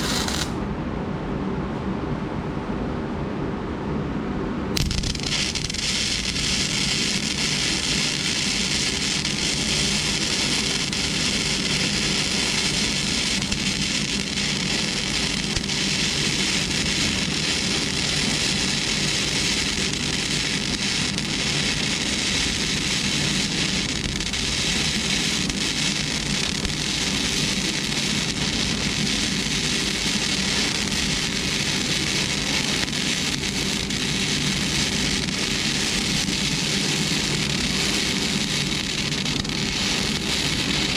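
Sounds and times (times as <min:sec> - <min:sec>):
arc welding crackling hiss: 0:00.0 - 0:00.6, 0:04.8 - 0:40.9.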